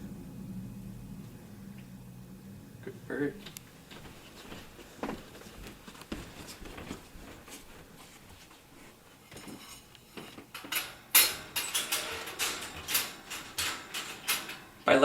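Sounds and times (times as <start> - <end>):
metal cage clattering and rattling: 9.3 - 15.0
wire cage clicks: 10.2 - 15.0.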